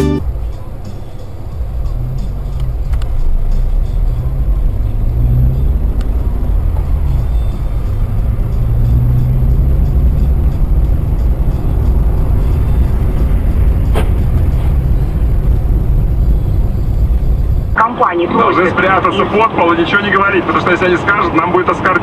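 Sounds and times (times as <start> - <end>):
car driving rumble: 0.0 - 22.0.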